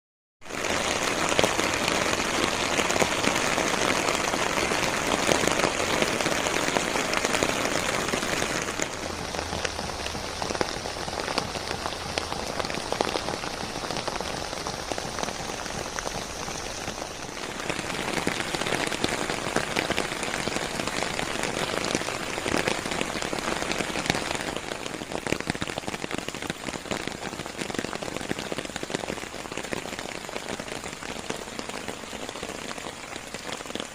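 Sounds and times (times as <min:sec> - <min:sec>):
rain falling on leaves: 0:00.4 - 0:33.9.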